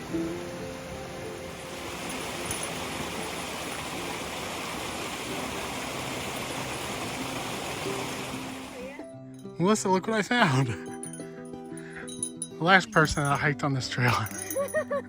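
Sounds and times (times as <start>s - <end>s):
mountain stream rushing: 0.0s - 9.0s.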